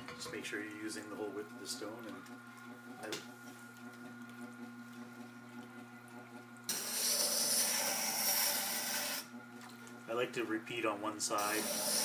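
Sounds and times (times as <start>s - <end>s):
grinder motor humming: 0.1s - 12.0s
blade grinding on wet grindstone: 6.7s - 9.3s, 11.3s - 12.0s.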